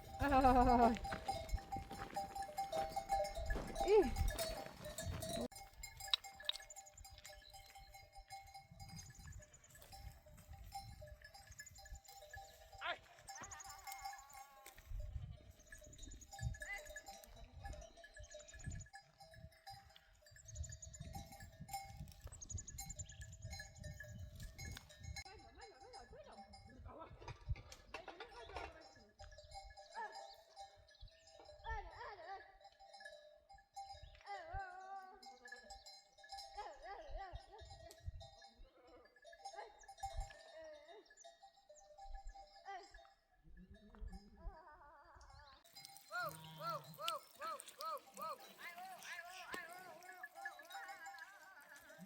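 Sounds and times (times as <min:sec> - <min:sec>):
sheep and goats bleating: 0:00.0 - 0:10.1, 0:11.3 - 0:18.6, 0:43.5 - 0:52.0
livestock bells clinking: 0:00.0 - 0:52.0.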